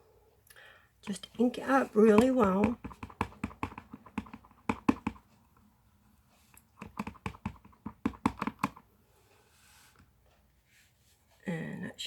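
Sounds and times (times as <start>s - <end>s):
stamp tapping on ink pad: 2.0s - 5.2s, 6.8s - 8.8s.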